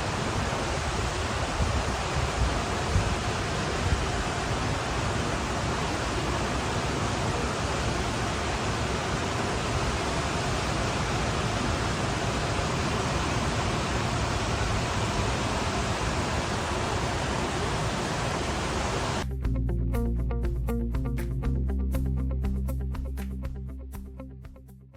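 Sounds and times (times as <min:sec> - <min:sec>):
water rushing: 0:00.0 - 0:19.3
music: 0:19.2 - 0:24.9.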